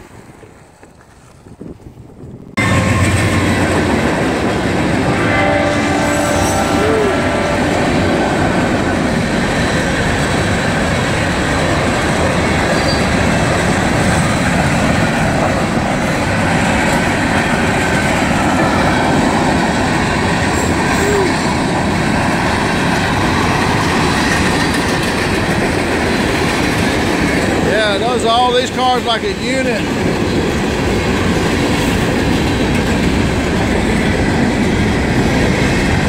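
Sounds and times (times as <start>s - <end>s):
freight train rumbling past: 2.2s - 36.0s
locomotive horn blast: 2.6s - 9.0s
train wheel squeals: 5.2s - 7.4s, 12.6s - 13.3s.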